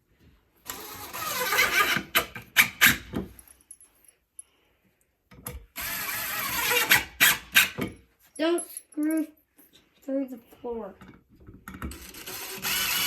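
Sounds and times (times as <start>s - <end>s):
power drill driving a screw: 0.6s - 3.1s, 5.8s - 7.8s, 11.8s - 13.0s
sharp drill clicks: 11.9s - 13.0s.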